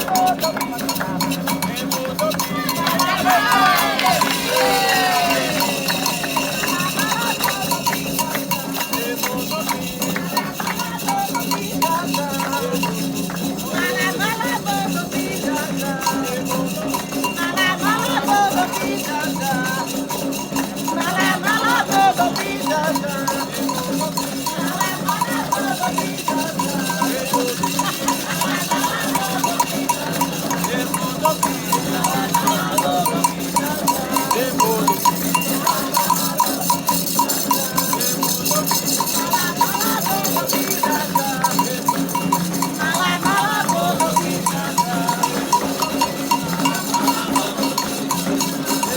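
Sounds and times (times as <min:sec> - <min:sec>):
shaken rattles: 0:00.0 - 0:48.9
voices chanting: 0:00.0 - 0:48.9
struck metal bell: 0:23.0 - 0:48.9.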